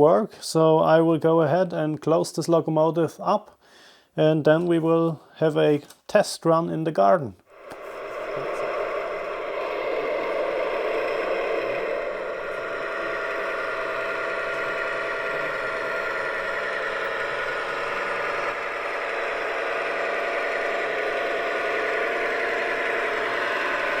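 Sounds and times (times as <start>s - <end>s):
diesel engine sound from loudspeaker: 7.8s - 24.0s.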